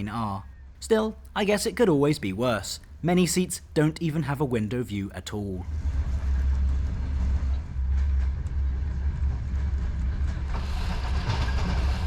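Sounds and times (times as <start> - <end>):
train wheels rumbling on track: 5.7 - 12.0
rattling clatter: 9.6 - 12.0.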